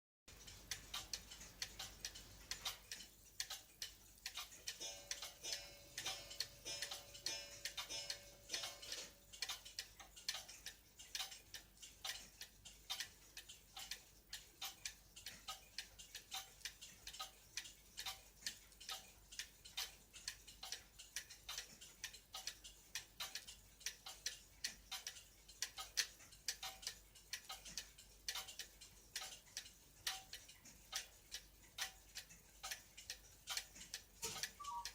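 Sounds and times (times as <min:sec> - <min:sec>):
clock ticking: 0:00.3 - 0:34.9
faint ringing tone: 0:34.3 - 0:34.9.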